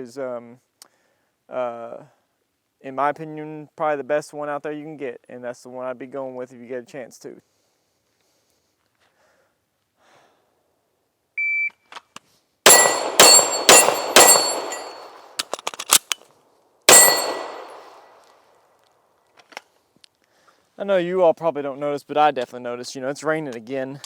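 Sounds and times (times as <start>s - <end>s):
steel targets ringing: 12.7s - 15.4s, 16.9s - 18.0s
pistol shots: 12.7s - 16.2s, 16.9s - 18.0s.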